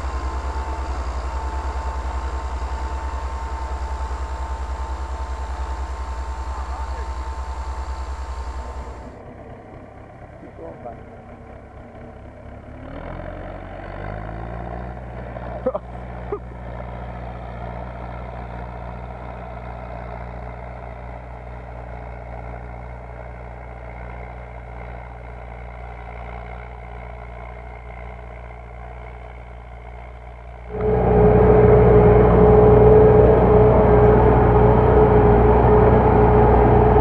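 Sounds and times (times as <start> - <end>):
high whine: 0.0 - 9.2, 30.6 - 37.0
tractor diesel engine running: 0.0 - 37.0.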